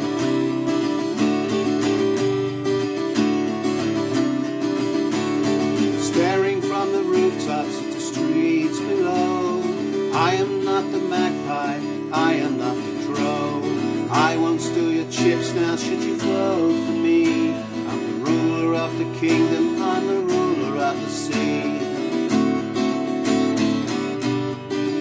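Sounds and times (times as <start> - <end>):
acoustic guitar strumming: 0.0 - 25.0
person singing: 5.3 - 23.0.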